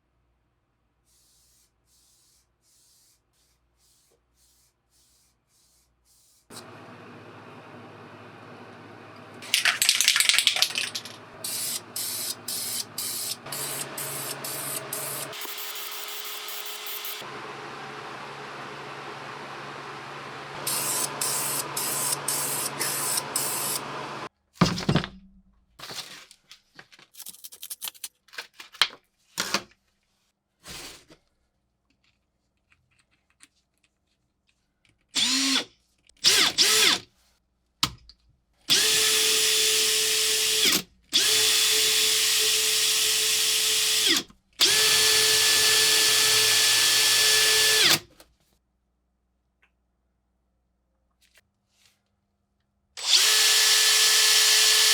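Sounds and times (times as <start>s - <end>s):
electric power tool whining: 6.5s - 9.8s, 10.6s - 24.3s, 38.7s - 48.0s, 53.0s - 54.9s.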